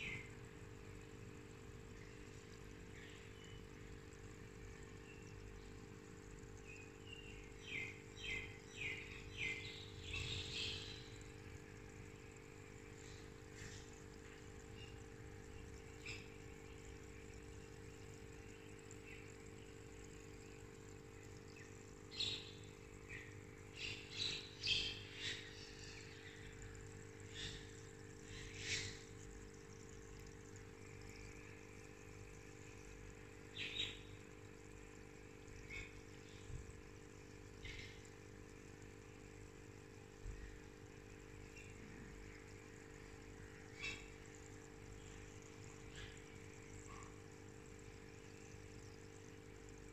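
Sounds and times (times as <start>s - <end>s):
steady low hum: 0.0s - 49.9s
bird chirping: 6.6s - 11.5s, 13.0s - 19.7s, 21.5s - 26.6s, 27.3s - 29.2s, 33.5s - 34.2s, 35.6s - 36.6s, 43.7s - 44.2s, 45.0s - 47.1s
birds chirping: 6.7s - 11.3s, 27.3s - 29.1s, 33.5s - 34.2s, 43.7s - 44.2s.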